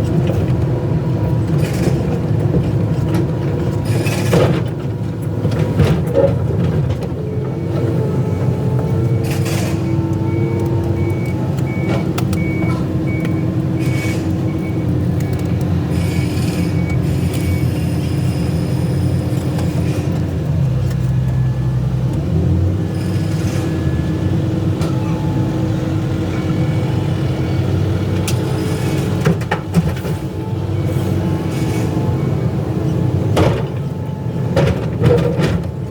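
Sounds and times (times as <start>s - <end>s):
excavator diesel engine running: 0.0s - 35.9s
high beeping alarm: 7.6s - 18.8s
knocks and clanks: 33.3s - 35.9s.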